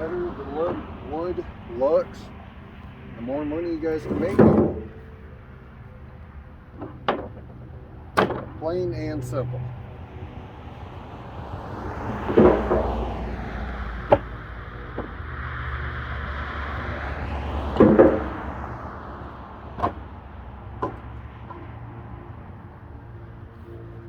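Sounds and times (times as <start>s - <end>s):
vehicle passing on road: 0.0s - 24.0s
firewood knocking when stacked: 8.2s - 8.5s, 14.0s - 14.3s, 17.7s - 18.4s, 19.8s - 20.1s, 20.8s - 21.6s.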